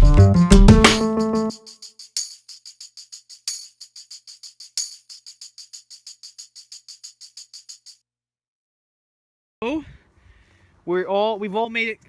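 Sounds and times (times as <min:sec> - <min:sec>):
tambourine shaking: 0:00.0 - 0:08.0.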